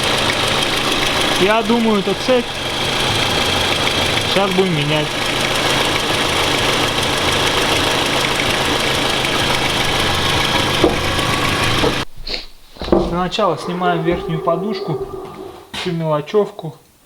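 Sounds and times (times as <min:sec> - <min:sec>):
engine running with fast knocking: 0:00.0 - 0:12.1.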